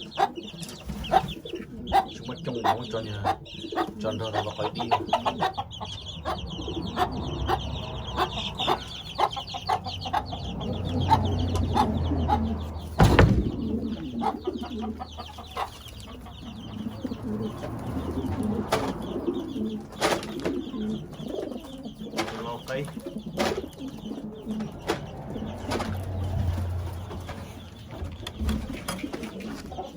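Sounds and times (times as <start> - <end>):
chickens and birds calling: 0.0 - 29.9
loud thump: 12.9 - 13.9.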